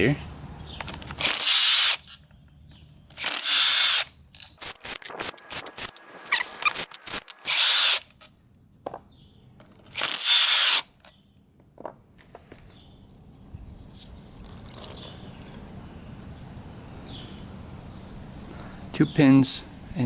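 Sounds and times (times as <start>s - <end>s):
power tool whirring: 1.1s - 2.1s, 3.2s - 8.2s, 9.9s - 10.9s.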